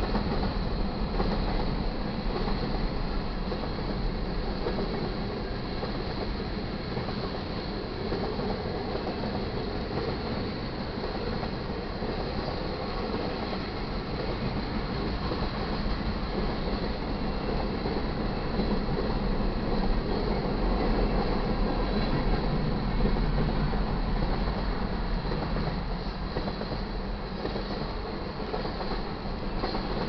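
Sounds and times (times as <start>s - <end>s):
train wheels rumbling on track: 0.0s - 30.0s.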